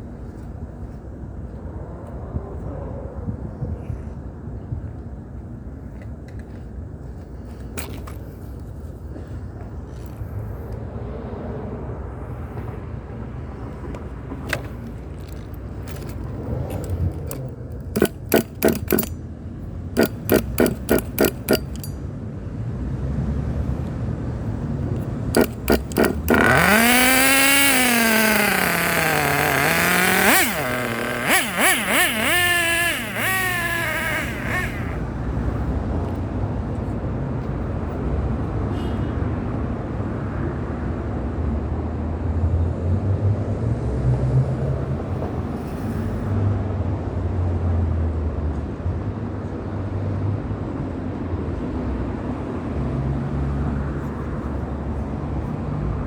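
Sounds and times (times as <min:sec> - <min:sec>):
small race engine revving: 0:15.9 - 0:19.2, 0:20.0 - 0:22.0, 0:25.4 - 0:35.5.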